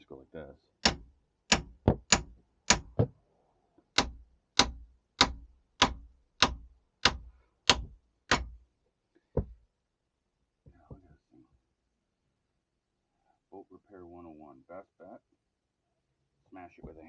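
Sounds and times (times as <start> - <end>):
hammer striking cast iron: 0.8 - 3.1, 4.0 - 8.6.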